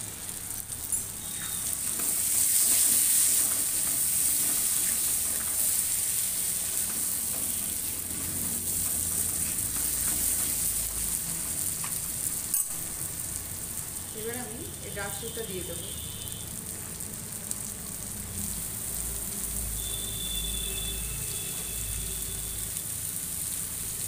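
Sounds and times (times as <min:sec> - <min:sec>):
vegetables sizzling in a wok: 0:00.0 - 0:24.0
spatula stirring in a wok: 0:00.5 - 0:13.8.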